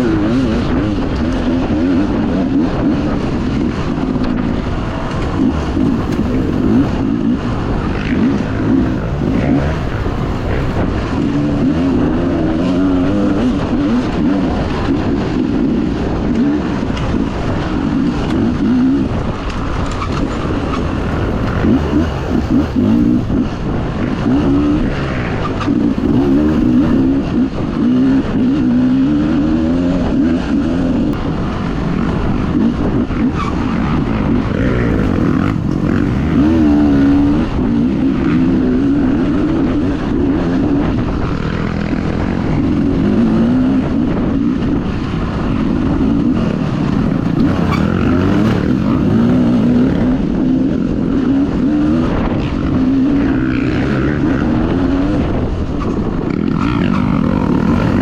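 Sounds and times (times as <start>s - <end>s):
dirt bike engine revving: 0.0s - 58.0s
rushing noise: 4.0s - 14.1s, 17.4s - 27.2s, 31.1s - 38.5s, 44.8s - 50.4s, 55.3s - 58.0s.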